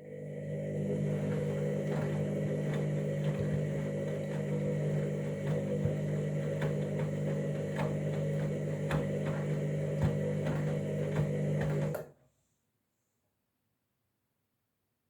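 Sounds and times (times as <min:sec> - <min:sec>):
washing machine humming: 0:00.0 - 0:12.1
washing machine knocking: 0:01.1 - 0:12.0.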